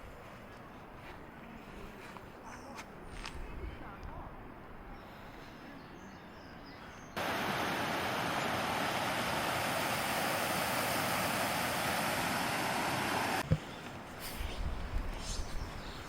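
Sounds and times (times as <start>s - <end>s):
stream water rushing: 7.2s - 13.5s.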